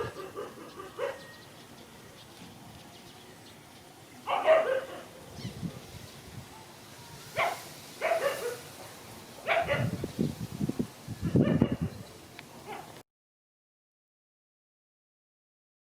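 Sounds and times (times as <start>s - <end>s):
dog barking: 0.0s - 1.4s, 4.2s - 5.2s, 7.4s - 10.0s, 11.3s - 11.9s, 12.6s - 13.0s.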